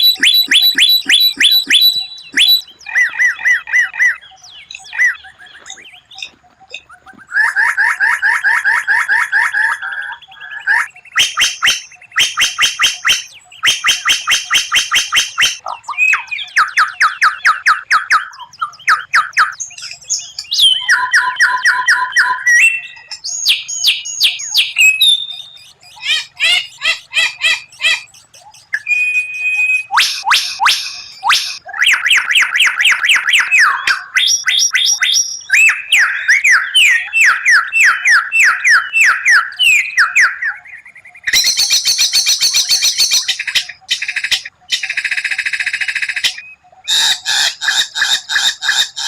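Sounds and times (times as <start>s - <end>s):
bird singing fast varied song: 0.0s - 49.0s.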